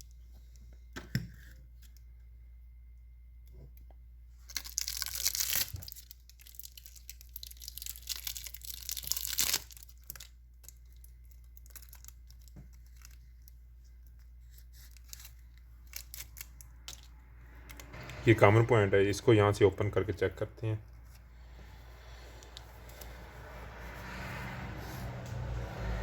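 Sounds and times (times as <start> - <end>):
insulation tearing: 4.5 - 11.0.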